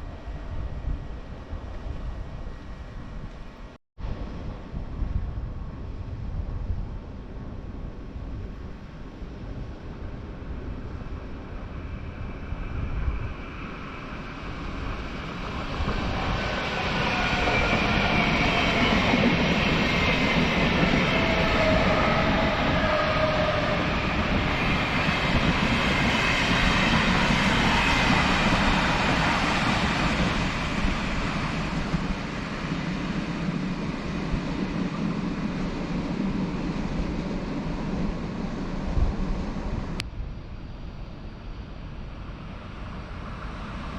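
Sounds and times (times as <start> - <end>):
electric train rumble: 0.0 - 43.9
train whine dropping in pitch: 15.5 - 32.2.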